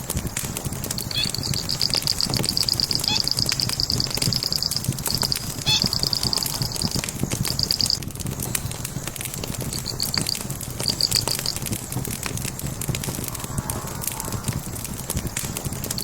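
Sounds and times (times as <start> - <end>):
wood fire crackling: 0.0 - 16.0
small bird chirping: 1.0 - 8.6, 9.4 - 11.7.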